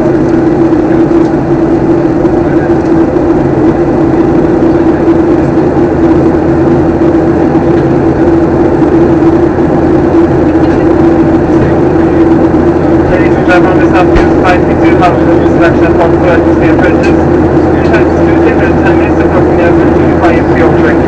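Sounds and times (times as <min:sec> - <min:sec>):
airliner cabin drone: 0:00.0 - 0:21.0.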